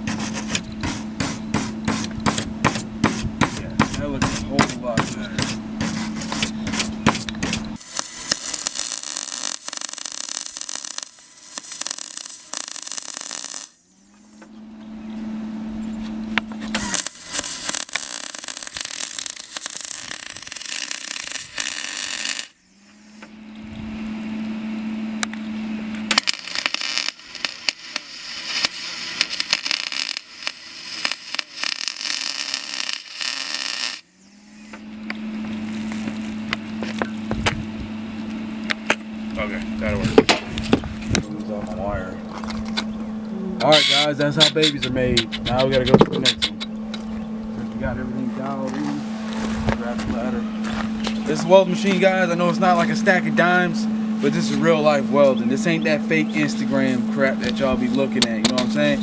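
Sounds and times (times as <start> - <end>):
welding arc crackling: 0.0 - 13.9, 16.3 - 22.6, 26.0 - 34.1, 35.6 - 37.0, 48.8 - 55.0
steady low hum: 0.0 - 59.0.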